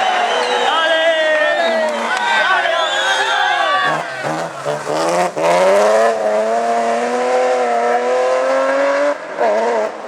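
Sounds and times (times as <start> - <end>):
rally car engine at full throttle: 3.8 - 10.0.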